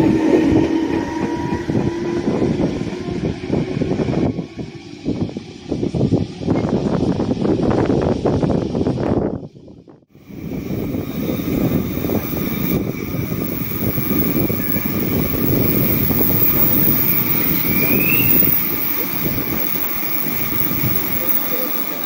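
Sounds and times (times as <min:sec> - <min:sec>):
train wheels rumbling on rail: 0:00.0 - 0:09.5, 0:10.2 - 0:22.0
rising wheel squeal: 0:10.6 - 0:22.0.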